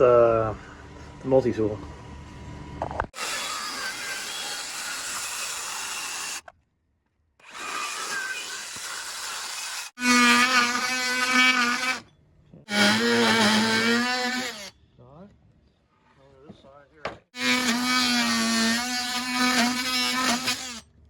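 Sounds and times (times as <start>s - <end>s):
circular saw cutting wood: 3.1s - 6.4s, 7.4s - 12.1s, 12.7s - 14.7s, 17.4s - 20.9s
oscillating multi-tool buzzing: 12.7s - 14.7s, 17.4s - 20.8s.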